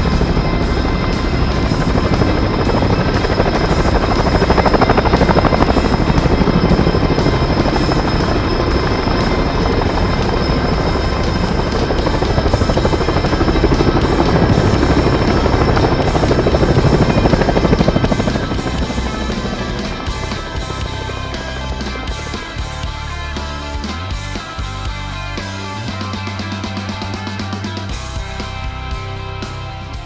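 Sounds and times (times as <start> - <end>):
thin high whine: 0.0 - 23.2
helicopter rotor chopping: 0.0 - 24.6
background music: 0.0 - 30.0.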